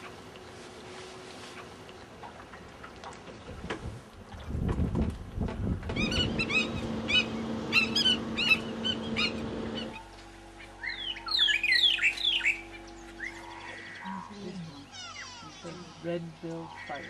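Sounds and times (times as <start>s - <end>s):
steady low hum: 4.6s - 17.0s
bird whistled song: 6.0s - 9.9s, 10.8s - 13.5s
sharp repeated bird calls: 6.0s - 15.3s.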